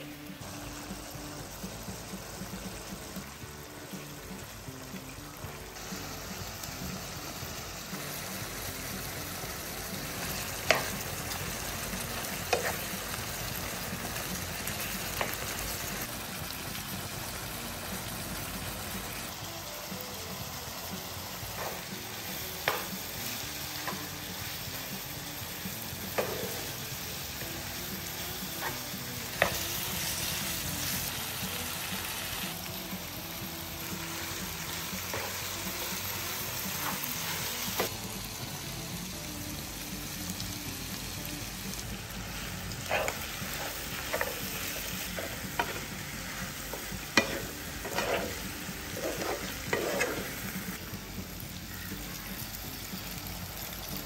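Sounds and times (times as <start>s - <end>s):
curry sizzling in a pan: 0.0s - 54.0s
spatula stirring: 42.8s - 46.0s, 46.6s - 50.4s.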